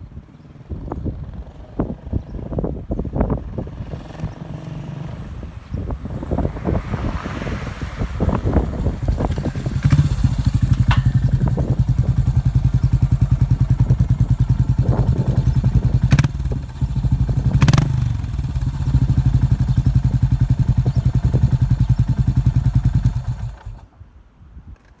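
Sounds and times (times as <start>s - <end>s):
motorcycle engine idling: 8.4s - 23.9s.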